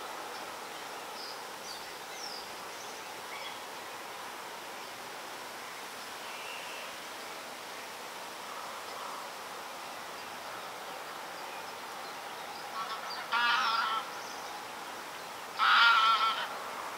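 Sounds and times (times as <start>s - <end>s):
outdoor hiss: 0.0s - 16.9s.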